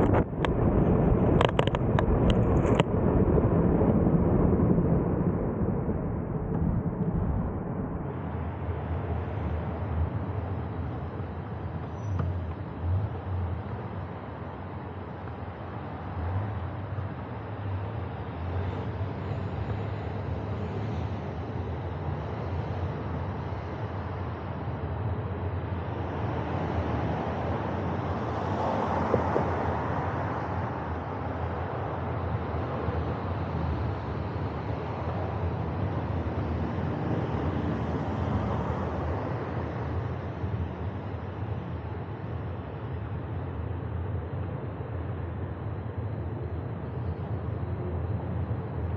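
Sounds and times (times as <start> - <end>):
low rumble: 0.0 - 9.4
wind and road noise: 0.0 - 48.9.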